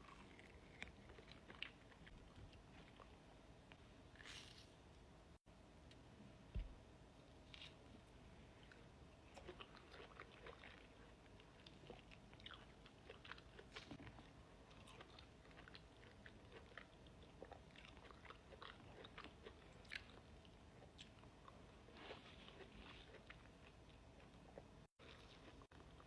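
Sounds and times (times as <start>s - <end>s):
close chewing and biting: 0.0s - 3.2s, 8.6s - 26.0s.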